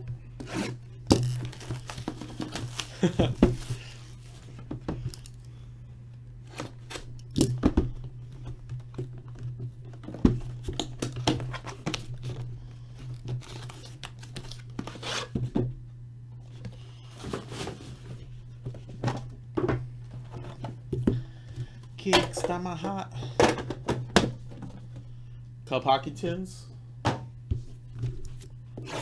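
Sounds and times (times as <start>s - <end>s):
low electrical hum: 0.0s - 29.0s
plastic wrapping tearing and crinkling: 0.6s - 4.2s, 13.2s - 15.1s.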